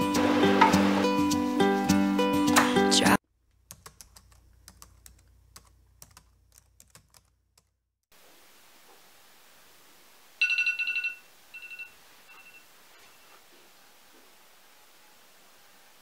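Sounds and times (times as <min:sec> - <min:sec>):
keyboard typing clicks: 0:03.7 - 0:07.7.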